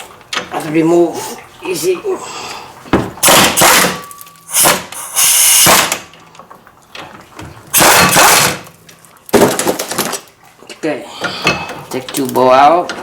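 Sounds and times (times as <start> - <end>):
impact wrench bursts: 3.2 - 6.1, 7.7 - 8.7.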